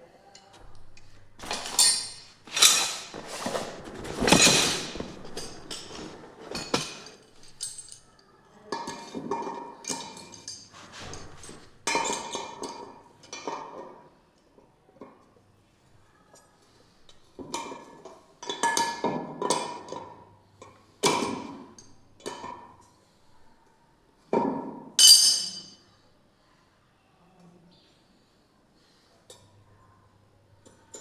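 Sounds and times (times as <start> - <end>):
hard objects clinking and scraping: 0.8 - 8.0.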